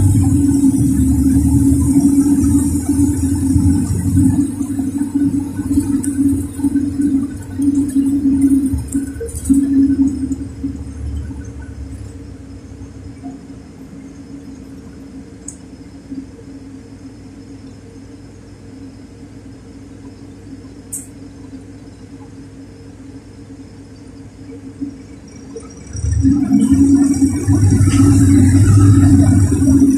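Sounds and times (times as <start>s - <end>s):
bus engine humming: 0.0s - 18.0s, 24.2s - 29.9s.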